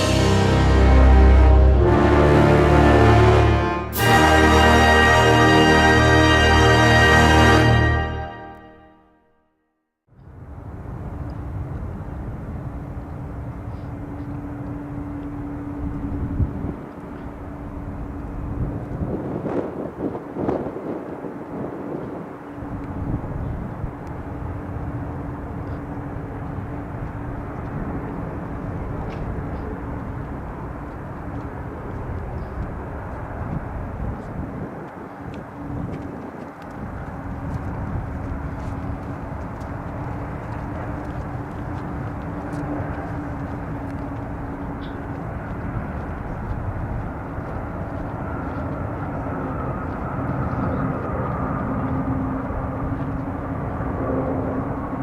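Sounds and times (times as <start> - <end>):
airliner jet engines landing: 0.0 - 8.6, 10.2 - 55.0
high falling jet whine: 0.0 - 8.9.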